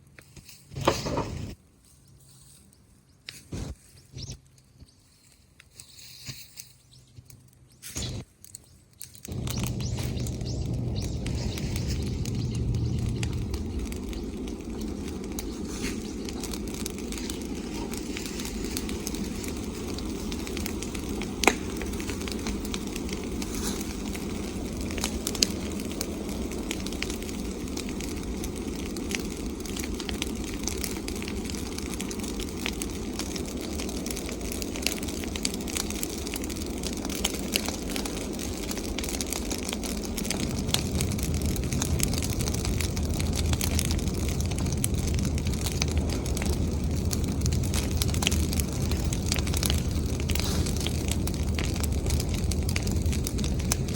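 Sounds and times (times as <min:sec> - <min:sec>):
bonfire crackling: 0:00.0 - 0:53.9
sharp fire pops: 0:00.2 - 0:01.6, 0:07.8 - 0:53.9
low rushing noise: 0:09.3 - 0:31.2.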